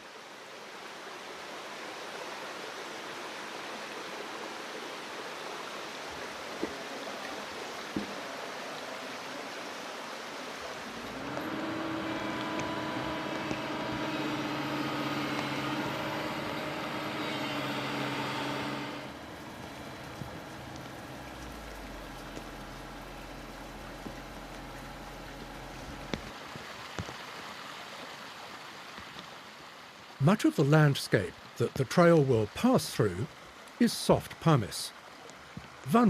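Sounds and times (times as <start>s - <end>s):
stream water running: 0.0s - 36.0s
motor running: 10.8s - 26.3s.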